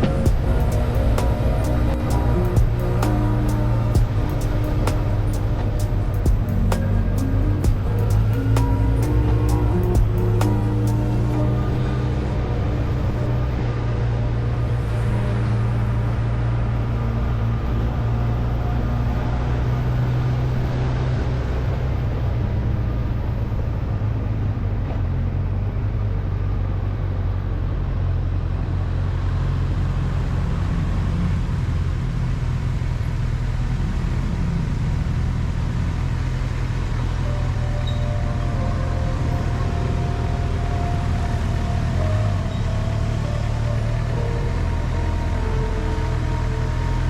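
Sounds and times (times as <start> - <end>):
motorcycle engine running: 0.0 - 21.4
road and wind noise: 0.0 - 47.0.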